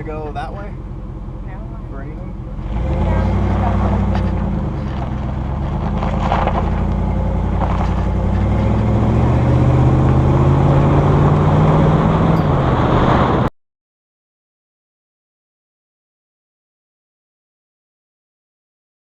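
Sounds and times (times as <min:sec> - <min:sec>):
pickup truck engine accelerating: 0:00.0 - 0:13.5
road noise: 0:00.0 - 0:13.5.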